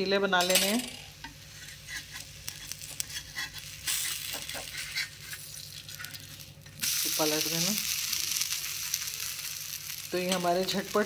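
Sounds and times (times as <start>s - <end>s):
batter sizzling in oil: 1.1s - 11.0s
spatula scraping pan: 1.4s - 6.2s.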